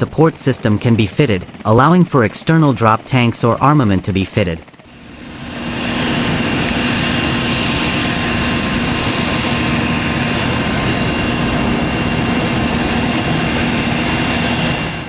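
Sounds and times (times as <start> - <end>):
helicopter turbine engines running: 0.0 - 15.0.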